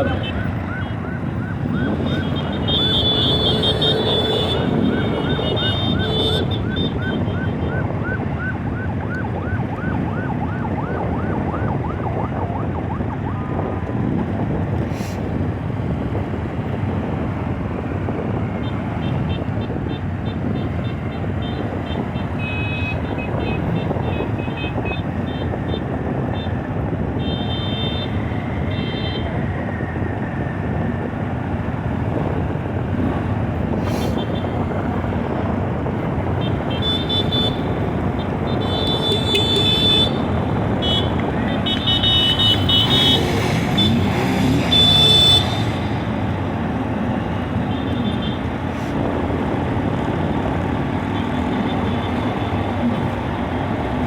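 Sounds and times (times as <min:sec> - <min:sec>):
race truck engines: 0:00.0 - 0:54.0.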